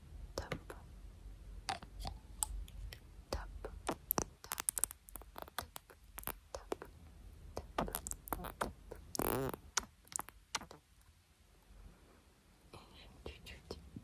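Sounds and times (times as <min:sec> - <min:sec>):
fingers clicking and tapping: 0:03.9 - 0:06.8
hands rubbing: 0:03.9 - 0:06.8, 0:07.6 - 0:10.7.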